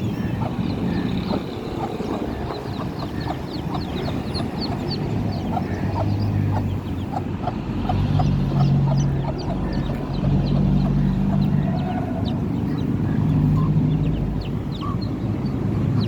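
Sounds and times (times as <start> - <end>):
chicks peeping: 0.0 - 16.0
hen clucking: 0.0 - 16.0
low engine hum: 0.0 - 16.0.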